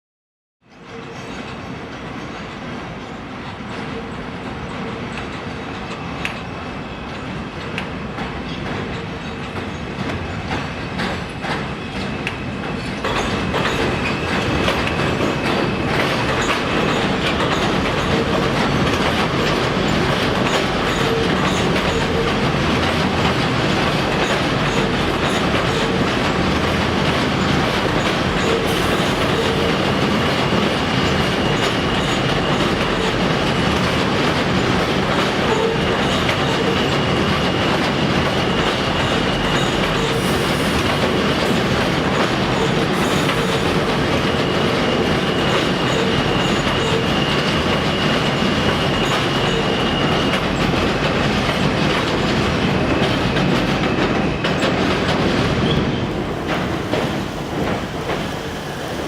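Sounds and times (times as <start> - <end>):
subway train rumble and rail clatter: 0.6 - 59.0.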